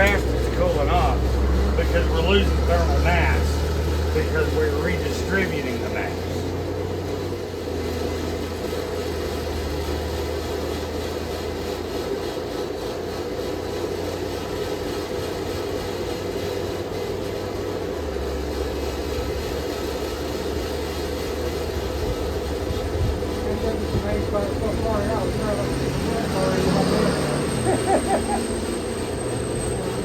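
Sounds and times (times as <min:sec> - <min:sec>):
forge rushing noise: 0:00.0 - 0:06.8
low hum: 0:14.6 - 0:30.0.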